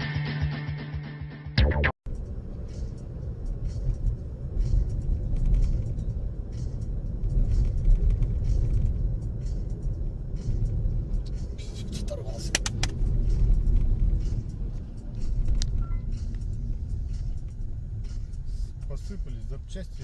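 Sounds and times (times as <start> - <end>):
road and engine rumble: 2.1 - 20.0
faint clicks and rattles: 3.6 - 11.5.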